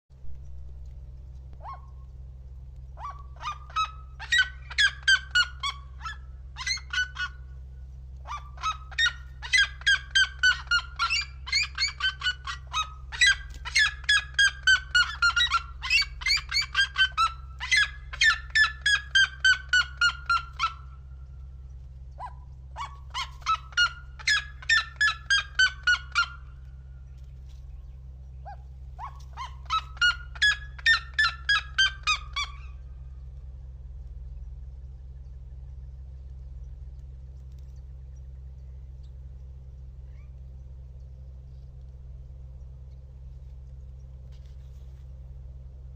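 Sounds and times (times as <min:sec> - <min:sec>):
steady low hum: 0:00.1 - 0:45.9
bird yelping calls: 0:01.5 - 0:02.2, 0:02.8 - 0:07.6, 0:08.2 - 0:33.3, 0:39.9 - 0:40.7.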